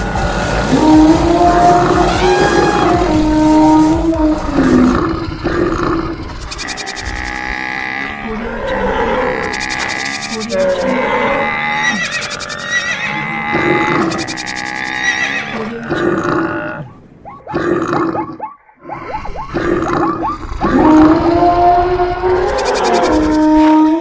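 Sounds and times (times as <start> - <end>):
background music: 0.0 - 7.4
animal calls: 0.7 - 24.0.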